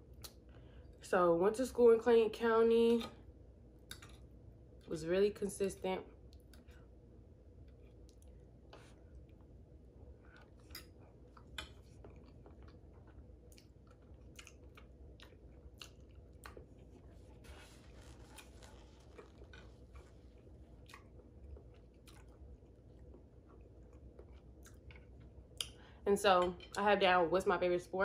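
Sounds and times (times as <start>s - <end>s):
close chewing with wet mouth clicks: 10.2s - 17.3s, 18.4s - 25.8s.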